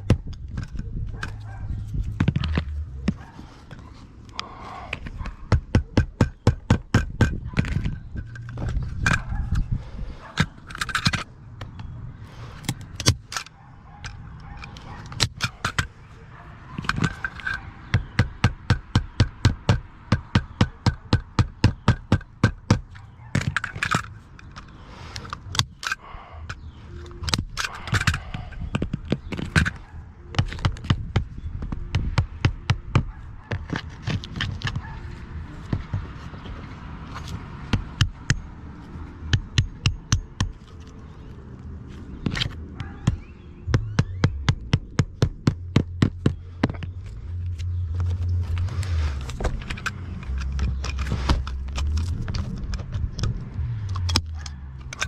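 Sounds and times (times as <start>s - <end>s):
hammer tapping on roof: 5.5s - 7.5s, 17.9s - 22.9s.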